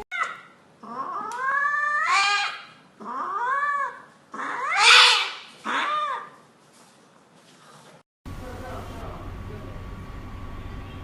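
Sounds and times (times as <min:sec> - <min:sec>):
cat yowling: 0:00.1 - 0:06.4.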